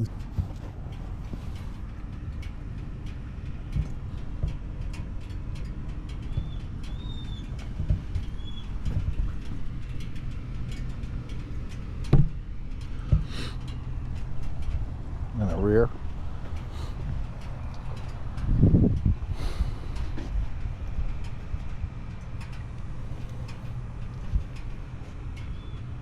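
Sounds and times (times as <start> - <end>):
steady low hum: 0.0 - 26.0
bird chirps: 6.2 - 7.6, 8.2 - 8.8, 25.4 - 25.9
thumps: 12.0 - 12.4.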